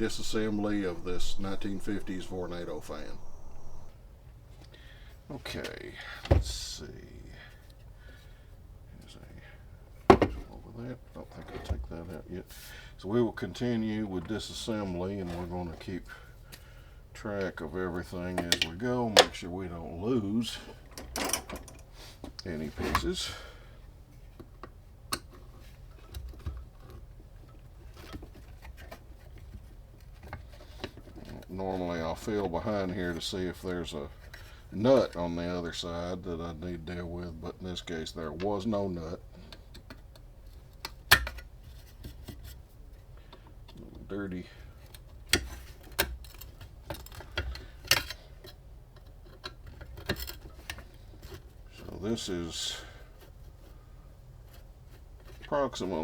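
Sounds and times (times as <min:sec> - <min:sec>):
tool clicking on metal fan parts: 0:00.0 - 0:03.9
low steady hum: 0:00.0 - 0:08.4.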